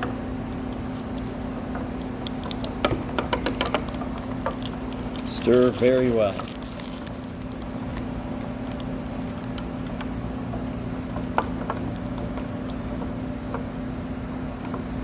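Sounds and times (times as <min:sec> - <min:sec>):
steady background hum: 0:00.0 - 0:15.0
stirrer clicking against jug: 0:01.1 - 0:07.0.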